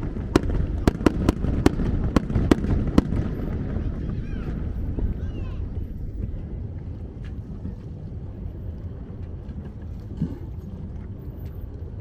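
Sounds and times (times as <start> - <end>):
water around a boat: 0.0 - 12.0
wind rumble on microphone: 0.0 - 12.0.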